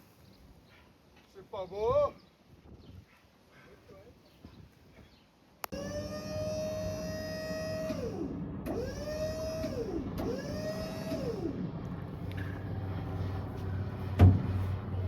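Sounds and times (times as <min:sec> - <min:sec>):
electric motor whining: 0:05.7 - 0:15.0.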